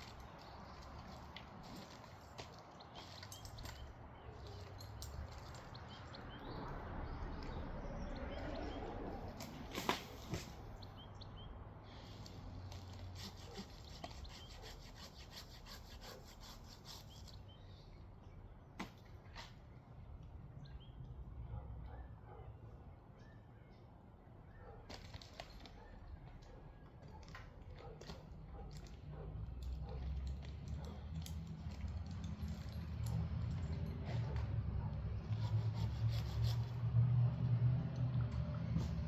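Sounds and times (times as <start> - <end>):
faint hand sawing of wood: 12.2 - 17.4, 35.0 - 37.3.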